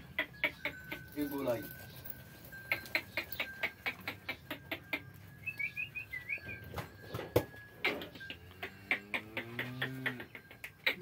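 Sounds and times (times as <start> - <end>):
small bird chirping: 0.2 - 7.2.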